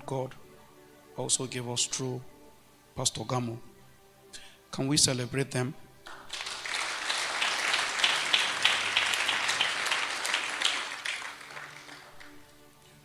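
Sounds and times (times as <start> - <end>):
congregation applauding: 6.1 - 12.7.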